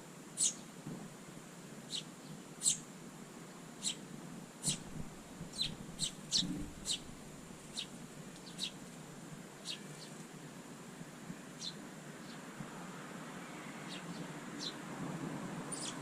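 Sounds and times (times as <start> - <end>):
sparrows chirping: 0.4 - 0.7, 1.9 - 2.9, 3.8 - 4.0, 4.6 - 8.9, 9.6 - 10.2, 11.6 - 12.5, 13.4 - 14.8, 15.7 - 16.0.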